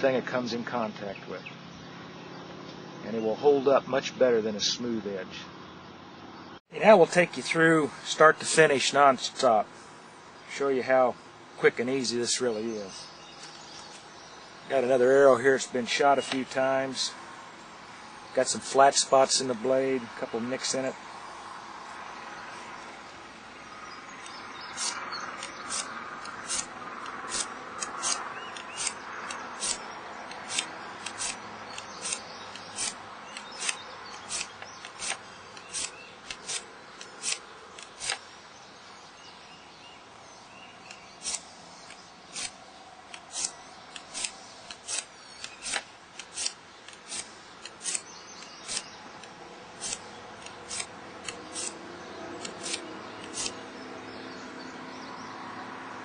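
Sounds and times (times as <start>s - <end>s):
metal file scraping steel blade: 24.3s - 26.7s, 27.3s - 29.8s, 30.5s - 38.2s, 43.3s - 48.9s, 49.8s - 51.8s, 52.4s - 53.6s.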